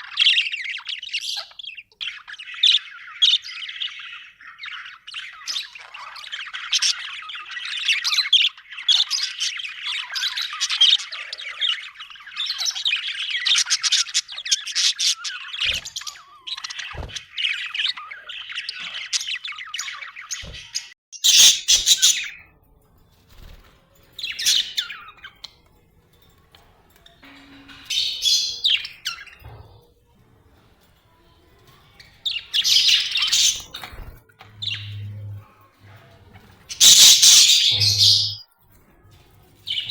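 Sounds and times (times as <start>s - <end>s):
budgerigars chirping and chattering: 0.0s - 22.6s, 23.4s - 25.7s, 27.1s - 29.7s, 30.6s - 38.4s, 39.4s - 39.9s
bird squawk: 21.2s - 22.4s, 32.6s - 33.8s, 36.7s - 38.4s.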